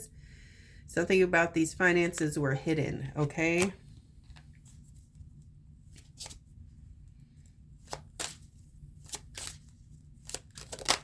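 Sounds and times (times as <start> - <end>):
cards clicking and snapping: 7.8 - 8.4, 9.0 - 9.6, 10.2 - 11.0.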